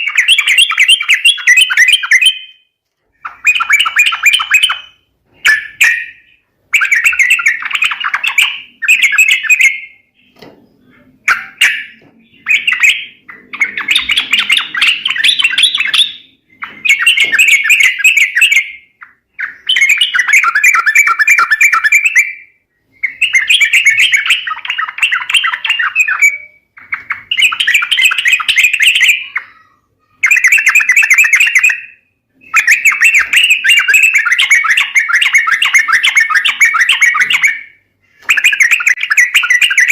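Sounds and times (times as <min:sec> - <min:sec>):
bird chattering calls: 0:03.2 - 0:22.4, 0:23.0 - 0:39.9.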